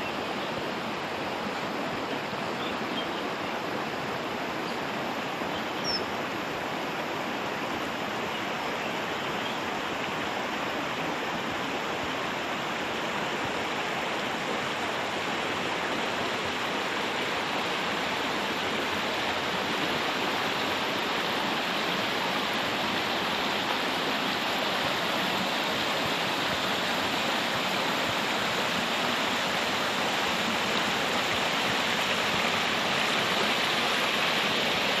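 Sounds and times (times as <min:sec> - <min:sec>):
flowing water: 0:00.0 - 0:35.0.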